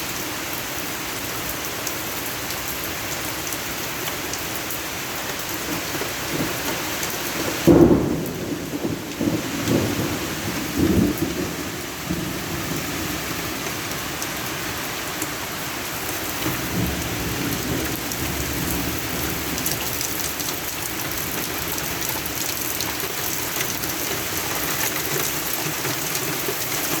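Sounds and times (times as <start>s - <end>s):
rain pouring: 0.0s - 27.0s
thunder rumbling: 7.5s - 14.5s, 16.3s - 24.5s.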